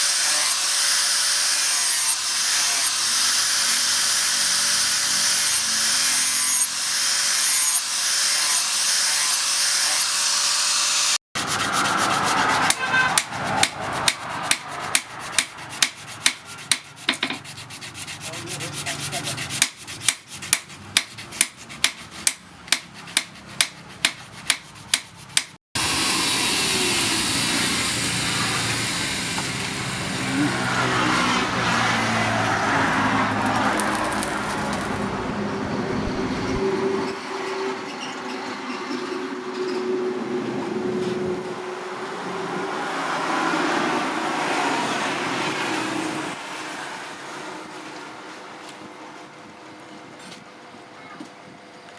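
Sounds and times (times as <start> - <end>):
abrasive rubbing on a blade: 11.4 - 25.6
sharp sharpening strokes: 11.4 - 25.6.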